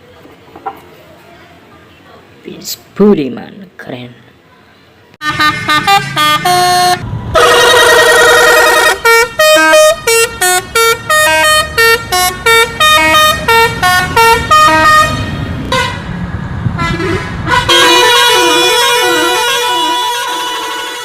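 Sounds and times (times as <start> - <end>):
musical vehicle horn: 5.2 - 16.1, 16.8 - 21.0.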